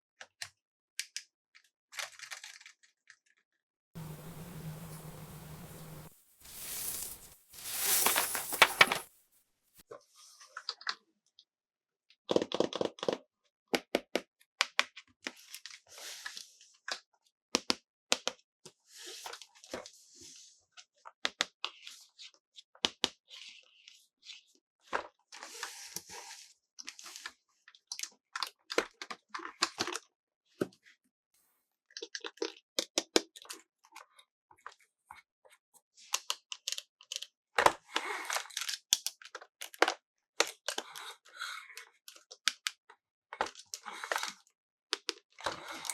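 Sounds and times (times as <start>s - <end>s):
packaging crinkling: 4.0s - 9.2s
packaging tearing: 6.4s - 9.1s.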